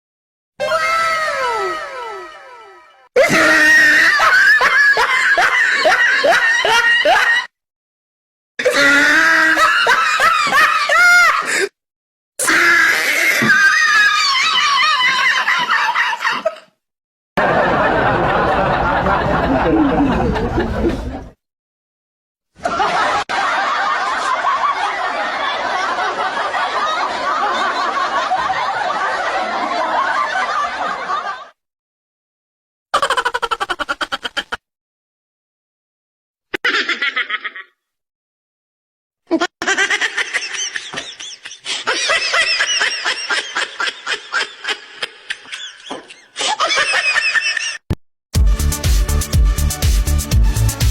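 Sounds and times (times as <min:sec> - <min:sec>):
crowd laughing: 0:01.4 - 0:07.5, 0:09.4 - 0:11.7, 0:14.0 - 0:16.7, 0:17.4 - 0:21.4, 0:22.6 - 0:31.6, 0:33.0 - 0:34.6, 0:36.6 - 0:37.8, 0:39.4 - 0:47.9
high-pitched rapid giggling: 0:33.0 - 0:34.6, 0:39.3 - 0:42.6.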